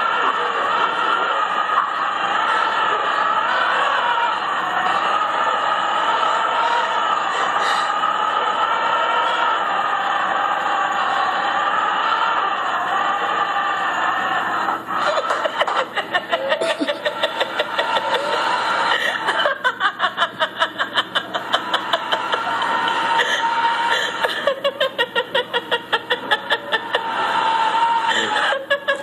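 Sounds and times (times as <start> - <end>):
person laughing hard: 13.2 - 29.0.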